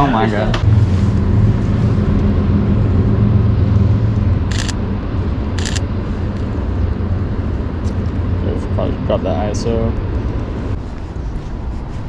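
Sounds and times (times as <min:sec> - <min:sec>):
vehicle engine rumble: 0:00.0 - 0:12.0
camera shutter firing: 0:04.5 - 0:04.8, 0:05.6 - 0:05.8.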